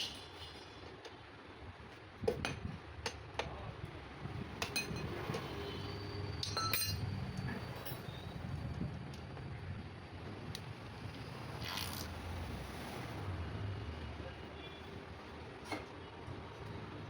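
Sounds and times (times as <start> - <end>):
metal tools clinking: 6.4 - 8.2.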